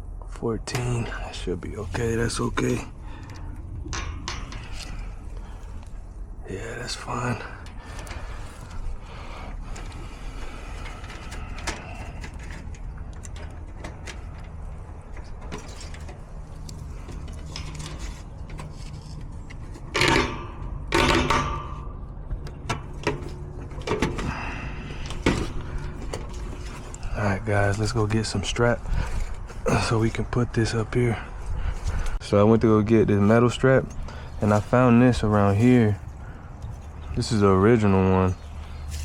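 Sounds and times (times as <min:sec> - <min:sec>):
steady low rumble: 0:00.0 - 0:39.0
metal rattling clanks: 0:00.6 - 0:32.2
metal tools clicking and clattering: 0:01.9 - 0:06.2, 0:10.8 - 0:27.1.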